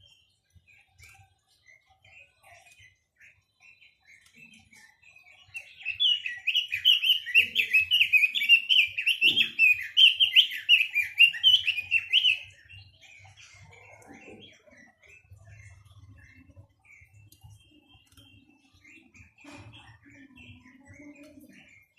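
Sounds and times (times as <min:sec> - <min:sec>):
songbird warbling: 0:05.4 - 0:21.9.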